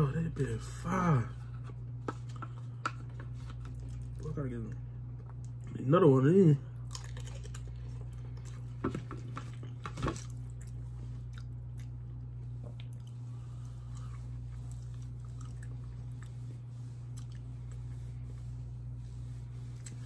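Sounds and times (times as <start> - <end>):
person chewing food: 6.8 - 18.0, 19.7 - 20.0.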